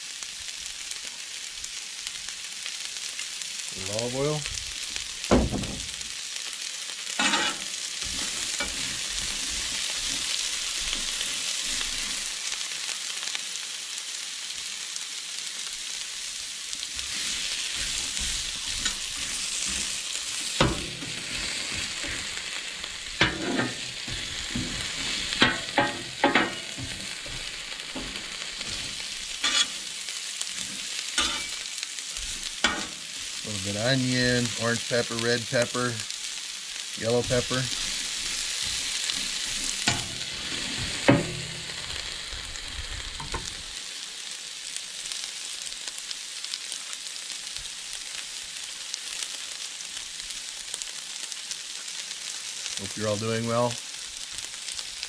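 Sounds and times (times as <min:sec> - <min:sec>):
vegetables sizzling in oil: 0:00.0 - 0:55.0
metal spatula scraping griddle: 0:07.2 - 0:12.4, 0:16.9 - 0:33.4, 0:37.0 - 0:42.1.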